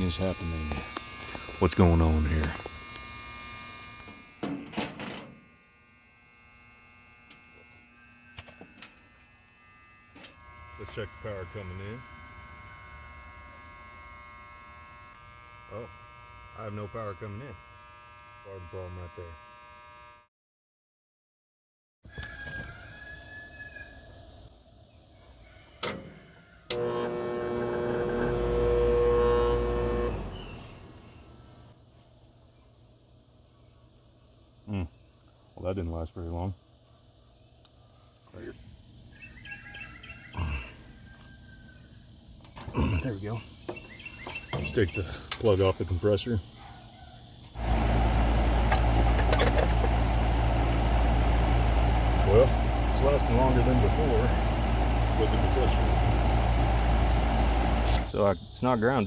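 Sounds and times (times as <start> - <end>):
air conditioner compressor humming: 0.0 - 8.2, 9.4 - 18.4, 26.8 - 31.8, 47.5 - 58.2
contactor buzzing: 0.0 - 20.3, 25.8 - 31.8, 47.5 - 58.3.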